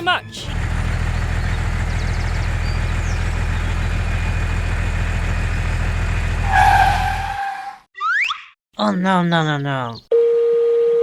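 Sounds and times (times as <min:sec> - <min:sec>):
engine running: 0:00.0 - 0:07.8.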